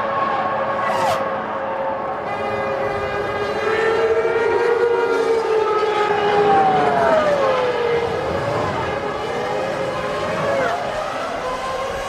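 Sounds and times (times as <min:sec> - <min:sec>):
racing car engines passing: 0:00.0 - 0:12.0.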